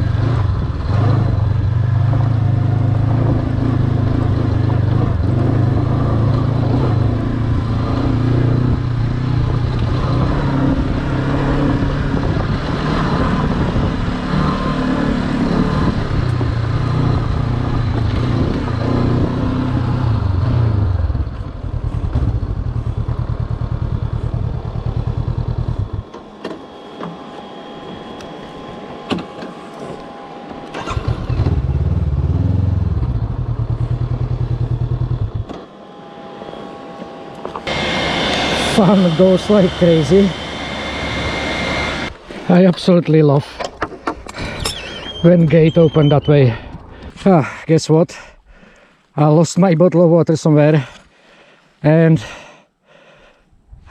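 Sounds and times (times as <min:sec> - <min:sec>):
motorcycle engine running: 0:00.0 - 0:26.1, 0:30.8 - 0:35.5.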